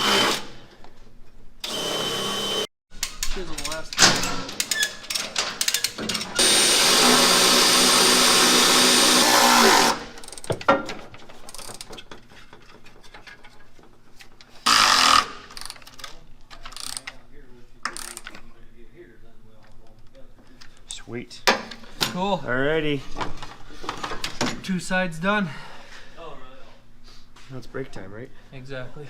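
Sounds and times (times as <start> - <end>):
power drill running: 0.0 - 0.6, 1.6 - 2.7, 6.4 - 10.2, 14.6 - 15.5.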